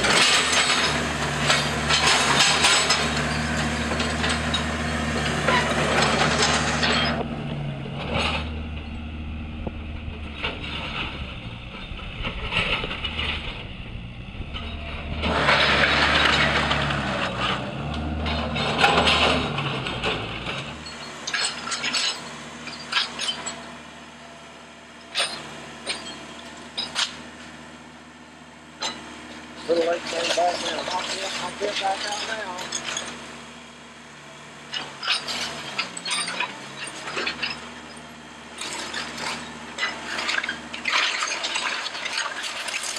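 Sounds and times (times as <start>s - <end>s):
debris clattering: 0.0s - 7.3s, 9.6s - 23.8s, 25.1s - 27.3s, 29.7s - 33.2s, 34.7s - 42.9s
demolition machine engine running: 0.0s - 42.9s
wood framing cracking and crashing: 14.7s - 23.6s, 34.8s - 42.9s.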